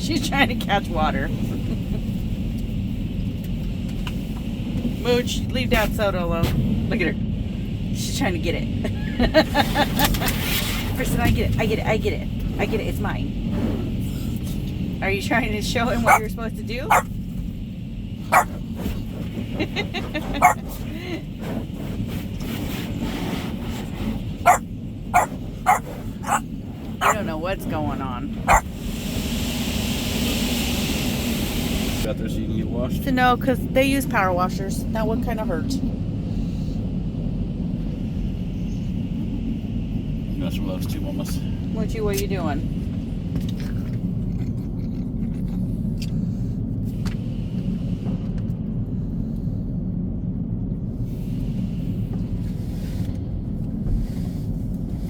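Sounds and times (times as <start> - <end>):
dog barking: 16.0 - 16.3, 18.3 - 18.6, 20.3 - 20.7, 25.2 - 26.4, 27.0 - 27.2.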